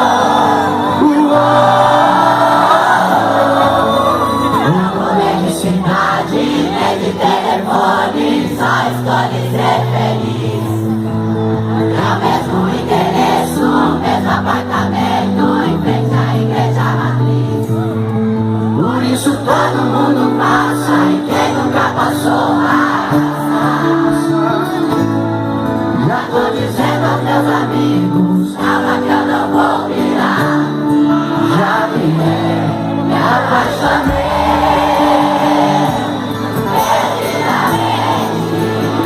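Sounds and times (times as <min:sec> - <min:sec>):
crowd singing along: 0:00.0 - 0:39.0
live band music: 0:33.1 - 0:39.0.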